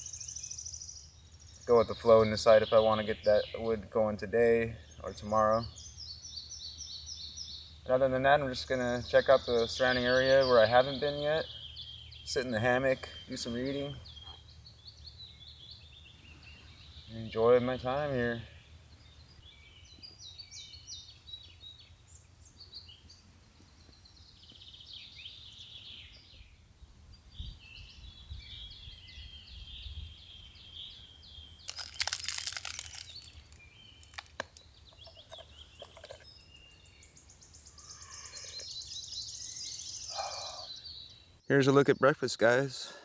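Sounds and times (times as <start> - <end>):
songbirds chirping and warbling: 0.0 - 43.0
short rustling crunch: 31.7 - 36.2.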